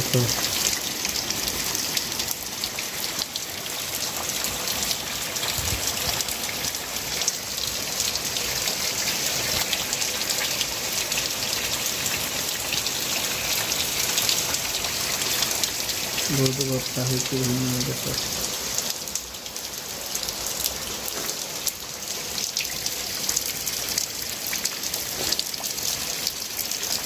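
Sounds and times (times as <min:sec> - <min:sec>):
heavy rain hissing: 0:00.0 - 0:02.2, 0:15.2 - 0:19.0.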